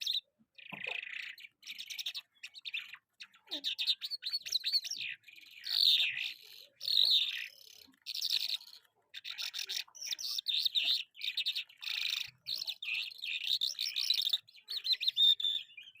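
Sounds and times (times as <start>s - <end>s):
lark singing warbles and trills: 0.0s - 16.0s.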